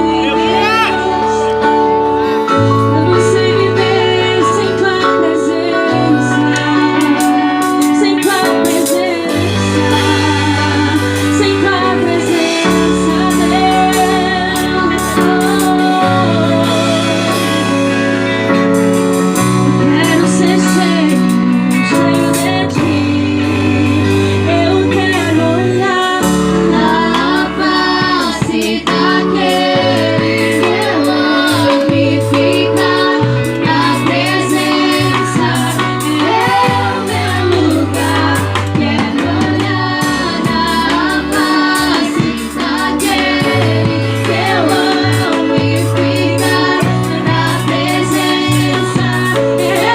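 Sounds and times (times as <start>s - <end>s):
person singing: 0.0s - 17.9s
bass line: 0.0s - 49.9s
worship song played by a band: 0.0s - 49.9s.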